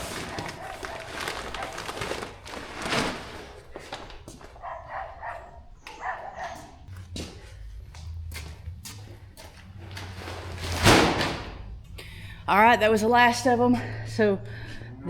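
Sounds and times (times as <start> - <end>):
dog whining: 0.0 - 2.0, 4.5 - 6.9.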